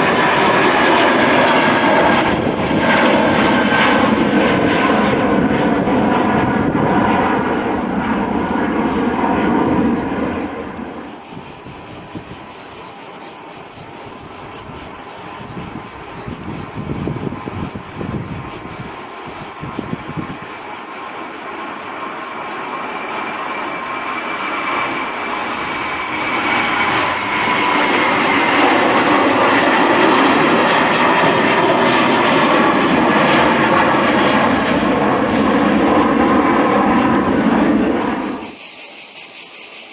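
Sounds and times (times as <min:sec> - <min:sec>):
jet engines whining: 0:00.0 - 0:38.9.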